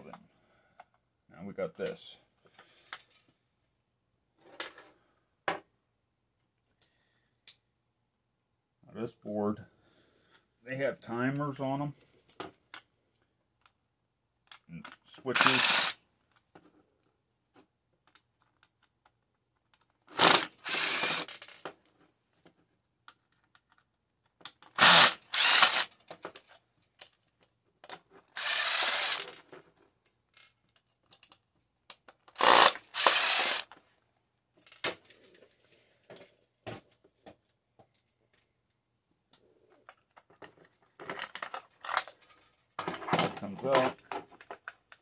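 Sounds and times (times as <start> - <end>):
small clicks and handling noise: 1.8 - 3.5, 11.3 - 13.8, 14.4 - 15.6, 16.3 - 20.1, 21.2 - 24.8, 25.4 - 45.0
power drill bursts: 15.3 - 16.0, 20.2 - 21.4, 24.8 - 25.9, 28.4 - 29.4, 32.4 - 33.7.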